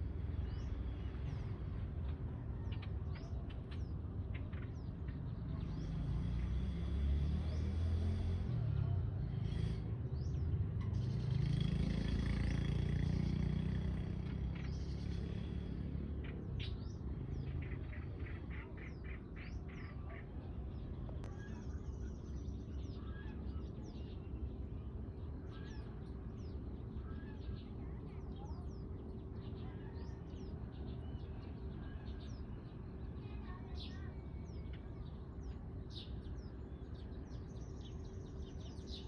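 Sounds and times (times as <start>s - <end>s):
small birds chirping: 0.0s - 39.0s
motor engine rising in pitch: 10.3s - 16.1s.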